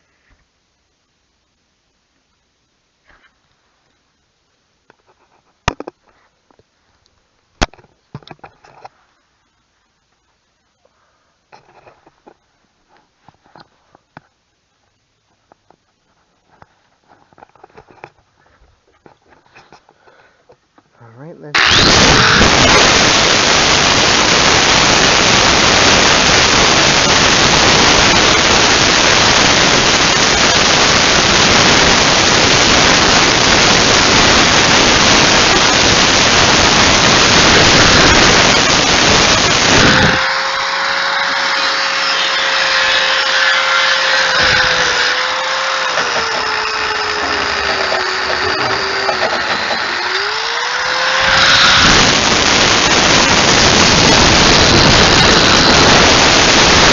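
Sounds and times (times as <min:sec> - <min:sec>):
power grinder grinding rubber: 0:21.6 - 0:56.9.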